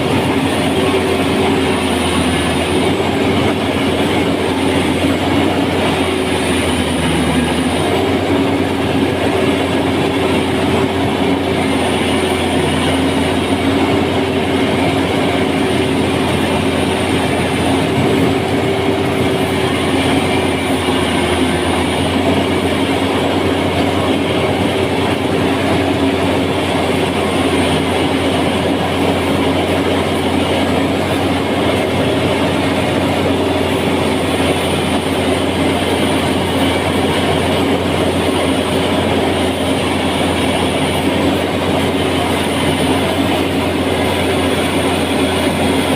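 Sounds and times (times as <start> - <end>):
machine engine running steadily: 0.0 - 45.9.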